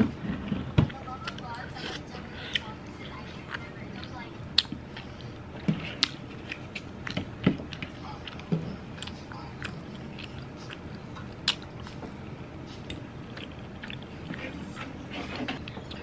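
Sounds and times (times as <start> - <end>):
chewing and mouth sounds: 0.5 - 16.0.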